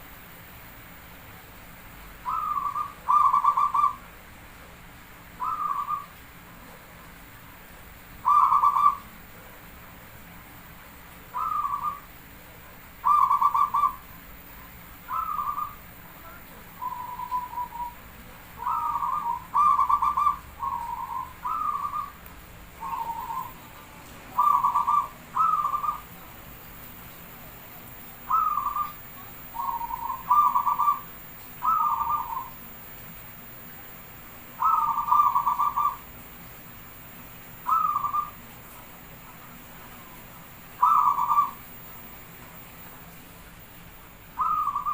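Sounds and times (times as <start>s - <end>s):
dove cooing: 2.2s - 4.0s, 5.4s - 6.1s, 8.2s - 9.5s, 11.3s - 12.1s, 13.0s - 14.0s, 15.1s - 18.0s, 18.6s - 22.2s, 22.8s - 26.2s, 28.2s - 32.6s, 34.6s - 36.1s, 37.6s - 38.4s, 40.8s - 41.9s, 44.4s - 44.9s.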